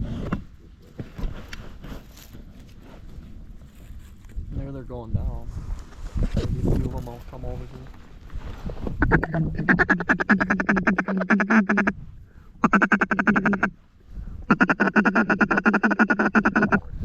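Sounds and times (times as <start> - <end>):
duck call quacking notes: 9.0 - 12.0, 12.6 - 13.8, 14.5 - 16.9.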